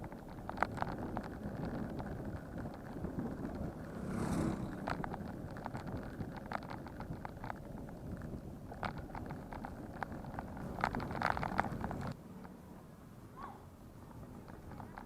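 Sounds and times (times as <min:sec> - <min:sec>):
bicycle rattling clicks: 0:00.0 - 0:12.2, 0:14.4 - 0:15.0
wind on microphone: 0:00.0 - 0:12.2
brief whoosh: 0:03.9 - 0:04.9.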